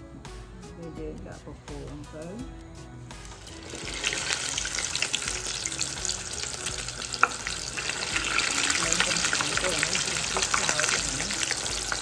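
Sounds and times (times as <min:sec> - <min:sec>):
food sizzling in hot oil: 0:03.2 - 0:12.0.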